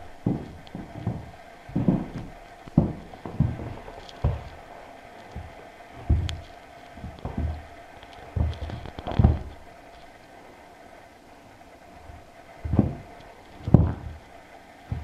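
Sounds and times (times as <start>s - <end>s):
puppy paws thumping on carpet: 0.0s - 9.6s, 12.0s - 14.3s.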